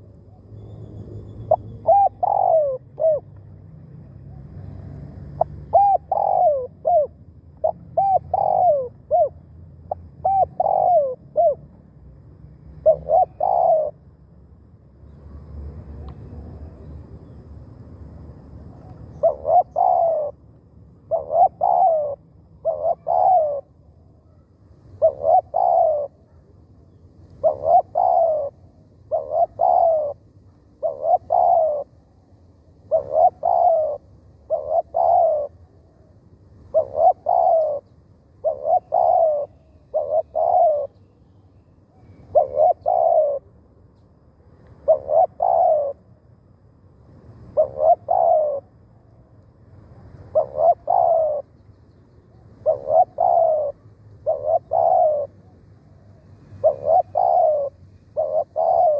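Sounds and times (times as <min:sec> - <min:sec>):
dove cooing: 0:01.2 - 0:03.3, 0:04.4 - 0:11.8, 0:12.7 - 0:14.0, 0:18.7 - 0:41.1, 0:42.0 - 0:43.8, 0:44.7 - 0:46.2, 0:47.4 - 0:48.8, 0:50.0 - 0:51.6, 0:52.2 - 0:58.9.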